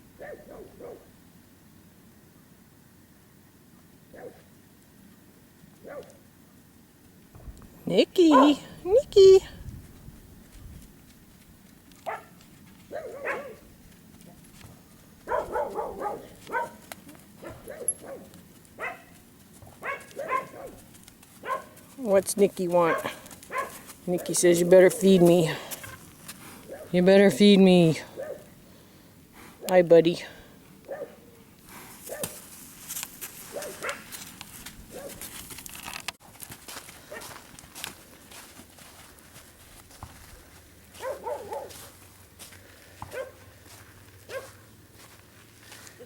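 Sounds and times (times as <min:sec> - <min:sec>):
dog whining yelps: 0:15.3 - 0:16.8, 0:19.8 - 0:20.8.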